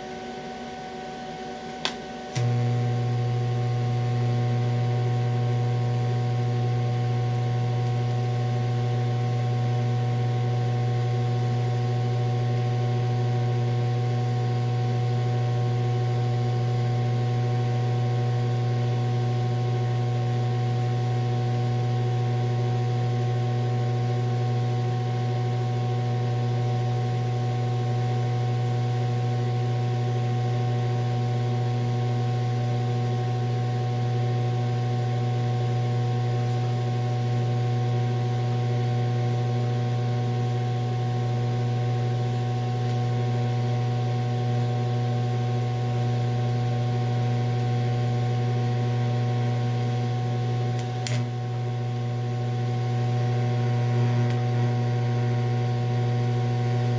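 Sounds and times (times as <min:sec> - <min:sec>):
welding arc buzzing hum: 0:00.0 - 0:56.9
welding arc click: 0:01.6 - 0:02.7, 0:42.8 - 0:43.1, 0:47.5 - 0:47.8, 0:50.7 - 0:52.1, 0:53.0 - 0:54.6.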